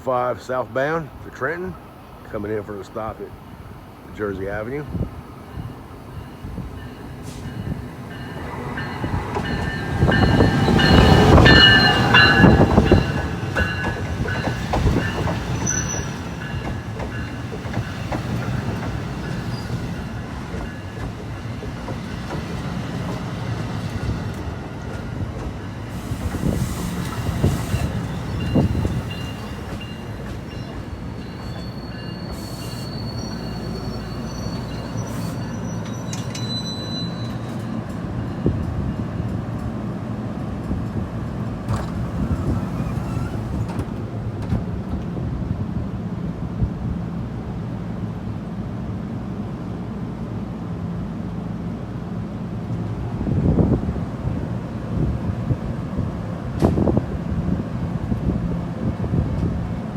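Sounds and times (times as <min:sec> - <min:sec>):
train low hum: 0:00.0 - 0:59.9
high-pitched wheel squeals: 0:30.6 - 0:37.6.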